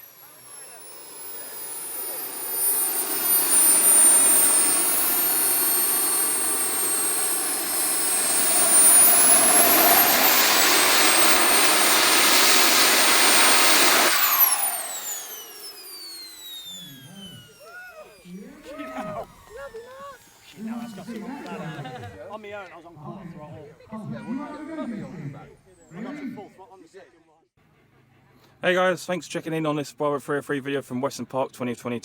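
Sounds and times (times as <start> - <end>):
jet turbines roaring and whining: 0.0 - 22.2.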